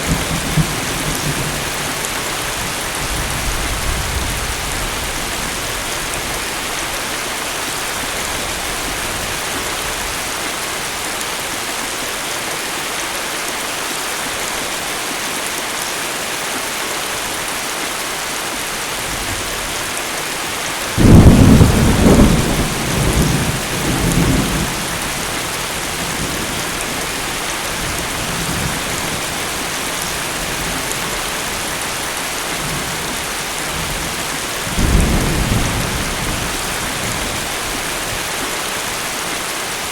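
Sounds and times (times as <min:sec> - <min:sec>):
steady rain falling: 0:00.0 - 0:39.9
thunder rumbling: 0:20.9 - 0:29.7, 0:33.7 - 0:37.7.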